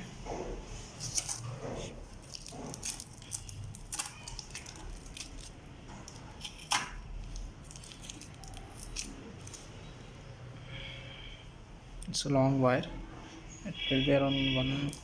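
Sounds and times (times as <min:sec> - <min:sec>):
plastic wrapping crinkling: 0:00.9 - 0:09.8.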